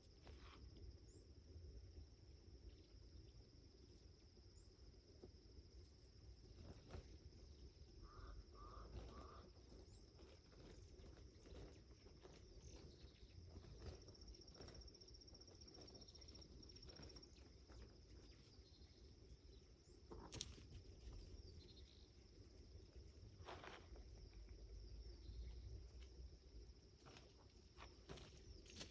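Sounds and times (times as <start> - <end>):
high insect trill: 0.0 - 28.9
small clicks and rustles: 8.7 - 18.6.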